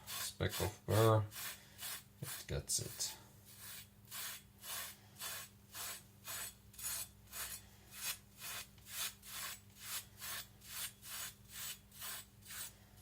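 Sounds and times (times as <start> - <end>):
knife stropping rasps: 3.5 - 12.7.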